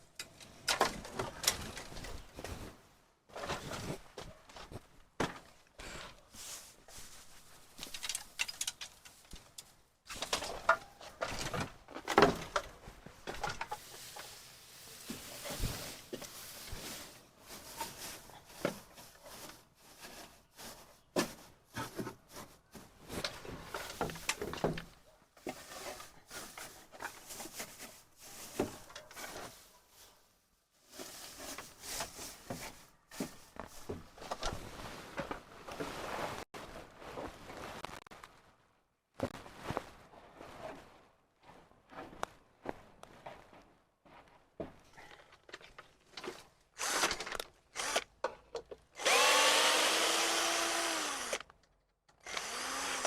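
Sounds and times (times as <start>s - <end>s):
rustling: 1.0s - 38.6s.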